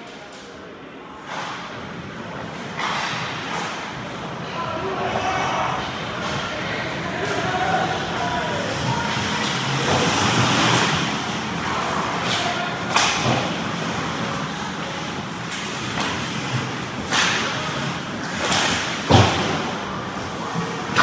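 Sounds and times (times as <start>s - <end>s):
sticks and puck clacking: 1.3s - 1.9s, 2.5s - 4.2s, 5.0s - 21.0s
skates scraping on ice: 5.0s - 21.0s.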